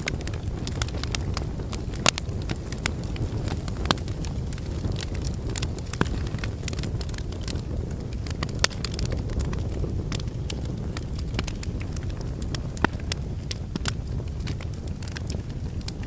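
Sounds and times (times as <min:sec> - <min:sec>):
fire crackling: 0:00.0 - 0:16.0
loud fire pops: 0:00.0 - 0:16.0
low rumble of flames: 0:00.0 - 0:16.0.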